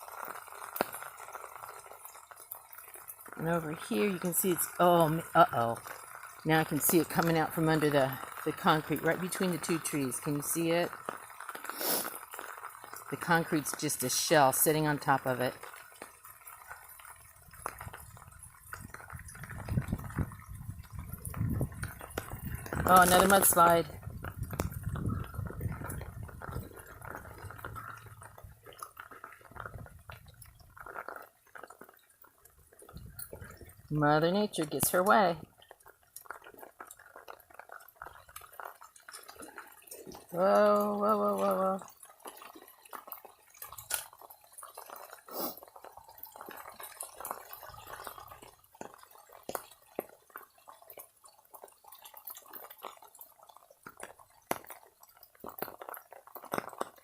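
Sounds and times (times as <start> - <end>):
debris crackling: 0.0 - 57.0
small splashes and clicks: 0.0 - 57.0
water trickling and dripping: 0.0 - 57.0
wet soil sliding: 11.5 - 12.5, 21.3 - 28.4.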